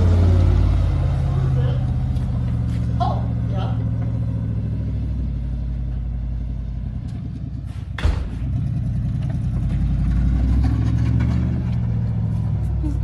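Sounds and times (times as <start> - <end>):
engine humming: 0.0 - 13.0
sharp thud: 7.7 - 8.6.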